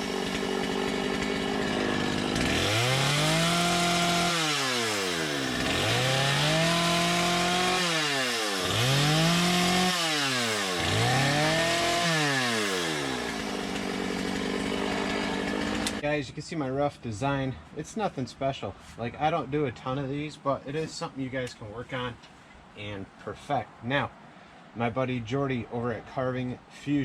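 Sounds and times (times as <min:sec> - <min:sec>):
chainsaw carving wood: 0:00.0 - 0:16.0.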